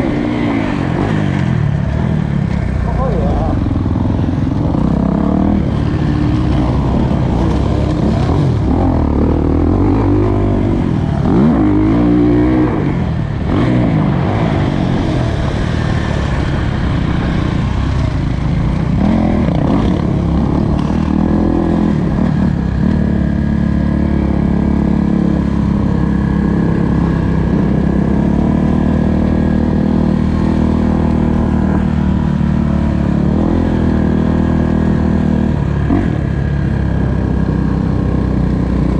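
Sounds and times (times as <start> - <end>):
motocross bike engine revving: 2.7 - 38.9.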